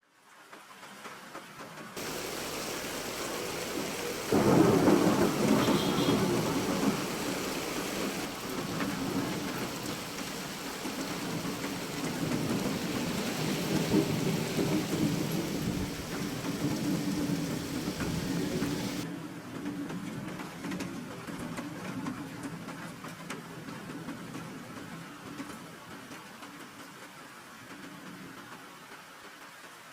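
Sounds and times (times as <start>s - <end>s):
steady rain: 0.1s - 19.1s, 21.6s - 29.9s
rolling thunder: 2.0s - 19.0s.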